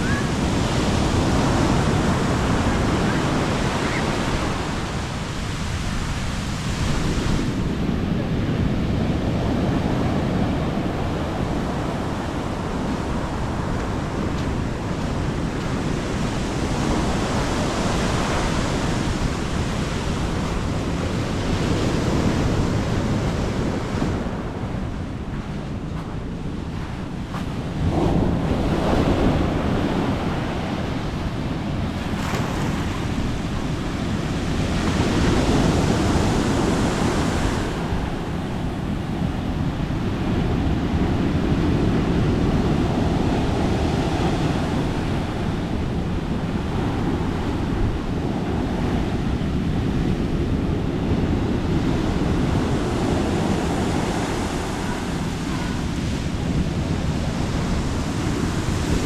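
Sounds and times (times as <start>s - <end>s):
sea waves breaking: 0.0s - 59.0s
wind gusts on microphone: 0.0s - 59.0s.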